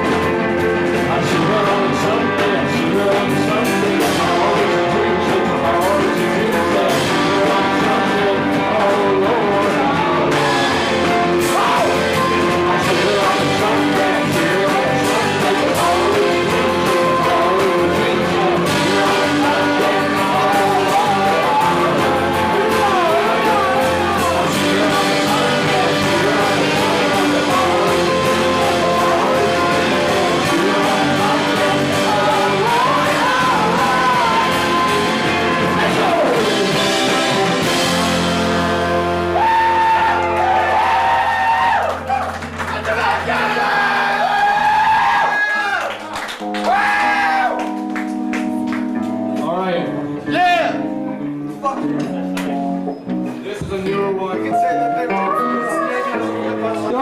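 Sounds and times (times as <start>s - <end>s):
live rock band with singer: 0.0s - 45.5s, 46.3s - 57.0s.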